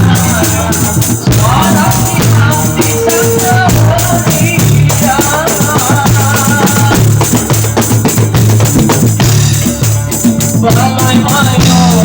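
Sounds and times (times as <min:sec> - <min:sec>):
hand drums and jingling percussion: 0:00.0 - 0:12.0
steady bass: 0:00.0 - 0:12.0.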